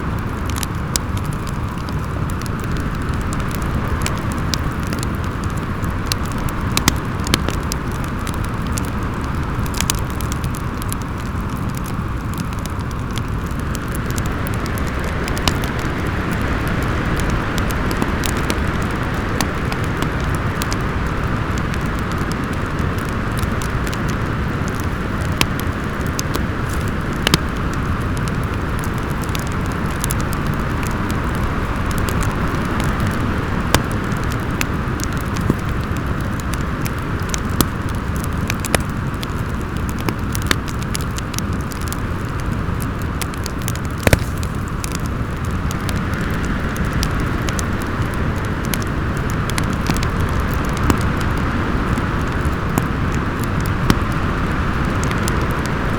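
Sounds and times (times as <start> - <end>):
storm wind blowing: 0.0 - 55.9
wood fire crackling: 0.0 - 55.9
sharp pops of fire: 0.1 - 9.0, 9.6 - 55.8.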